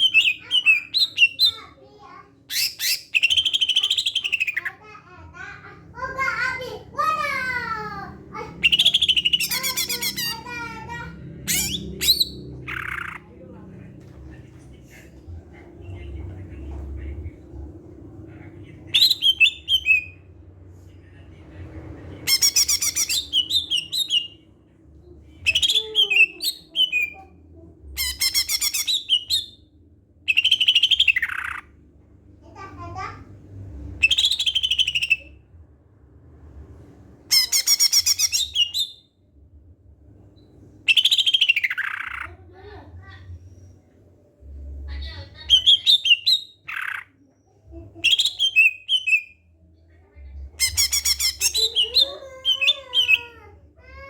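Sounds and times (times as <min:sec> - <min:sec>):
bird singing trills: 0:08.6 - 0:10.6.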